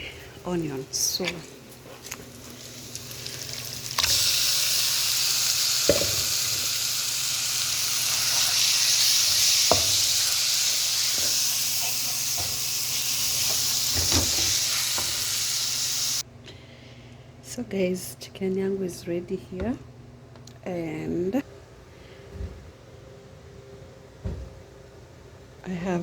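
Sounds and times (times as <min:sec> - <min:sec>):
chicken sizzling in a pan: 0:02.4 - 0:16.2.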